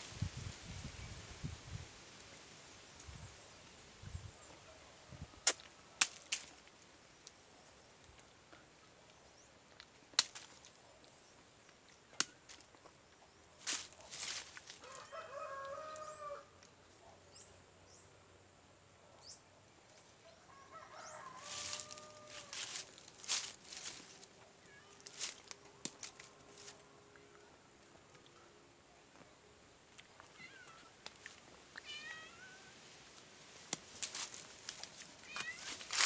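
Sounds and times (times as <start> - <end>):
rooster crowing: 14.8 - 16.5, 20.5 - 22.9
rustling: 21.4 - 26.8, 33.1 - 36.0.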